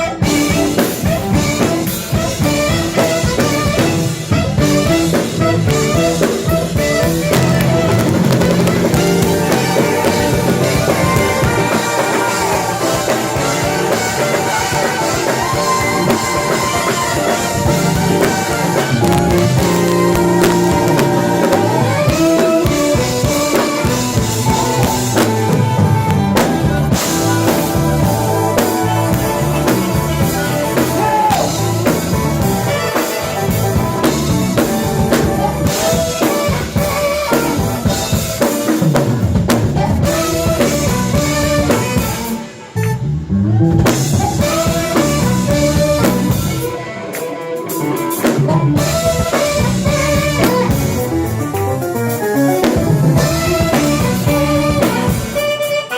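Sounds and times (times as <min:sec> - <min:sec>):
drum kit: 0:00.0 - 0:55.9
jazz band playing: 0:00.0 - 0:55.9.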